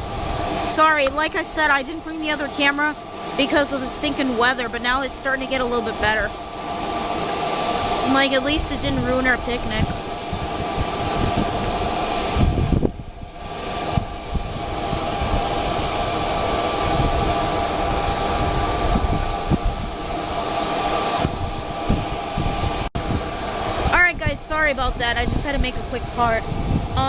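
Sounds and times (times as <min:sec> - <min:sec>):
jet engine rushing: 0:00.0 - 0:27.0
wind rumbling on microphone: 0:00.0 - 0:27.0.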